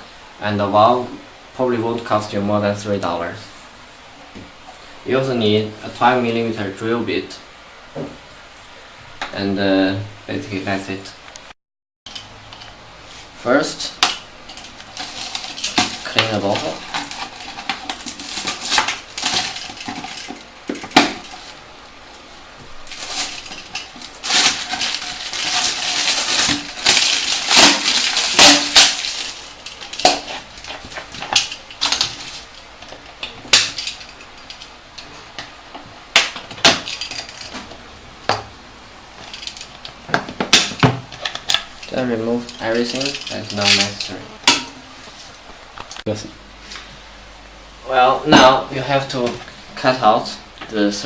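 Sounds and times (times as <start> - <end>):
plastic bottle crinkling: 22.8 - 34.1.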